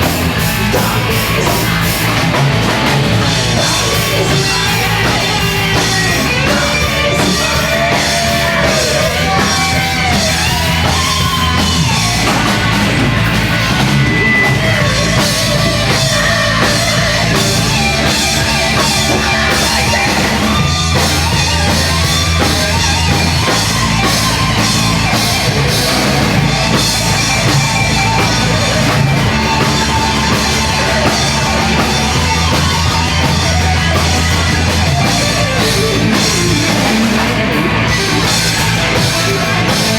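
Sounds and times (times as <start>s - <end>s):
band playing heavy rock: 0.0s - 39.9s
bass line: 0.0s - 39.9s
distorted guitars: 0.0s - 39.9s
pounding drum kit: 0.0s - 39.9s.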